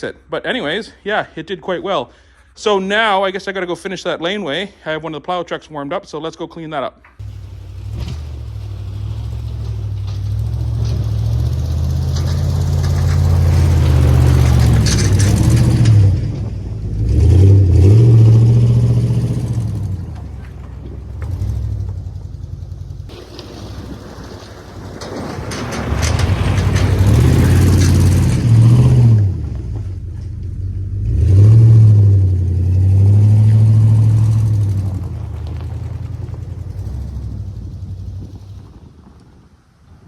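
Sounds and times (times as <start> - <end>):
truck engine revving: 7.2 - 38.9.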